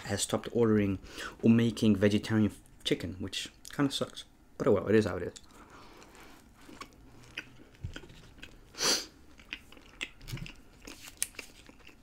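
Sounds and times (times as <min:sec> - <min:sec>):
person chewing food: 0:05.4 - 0:12.0.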